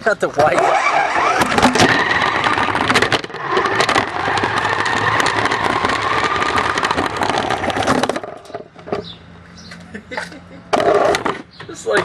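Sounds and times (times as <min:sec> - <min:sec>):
chassis and wheels rattling: 0:00.0 - 0:09.8, 0:10.7 - 0:12.0
rc car motor whining: 0:00.5 - 0:08.4.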